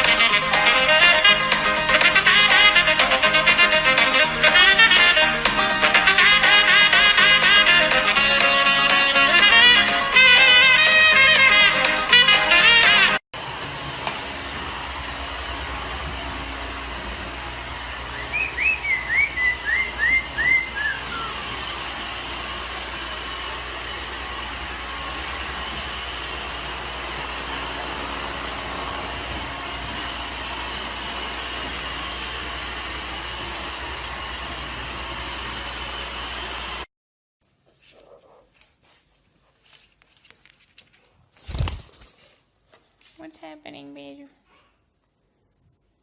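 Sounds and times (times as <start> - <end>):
parrot whistled chirps: 18.1 - 21.4.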